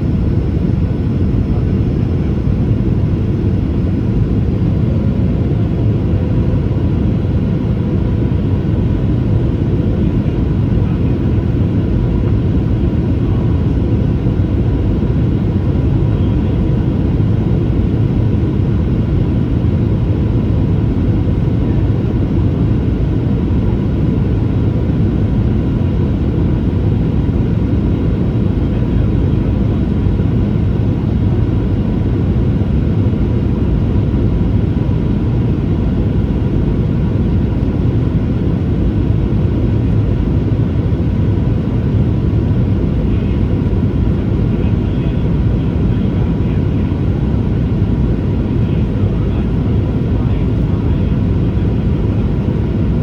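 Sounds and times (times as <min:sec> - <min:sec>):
deep rumble of jet engines: 0:00.0 - 0:53.0
faint steady whine: 0:00.0 - 0:53.0.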